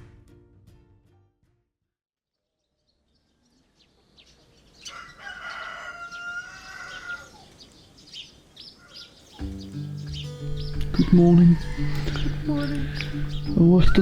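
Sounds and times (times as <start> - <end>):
small birds chirping: 2.6 - 14.0
rooster crowing: 4.8 - 7.5, 8.7 - 9.2, 10.8 - 14.0.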